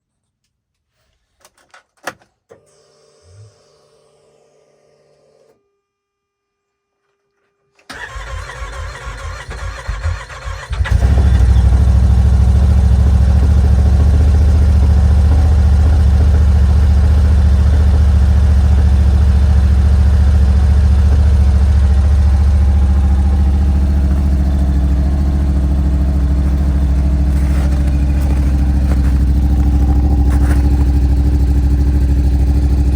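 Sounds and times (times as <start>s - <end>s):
starter motor cranking: 7.9s - 32.9s
engine idling: 8.0s - 32.9s
low hum: 11.0s - 32.9s.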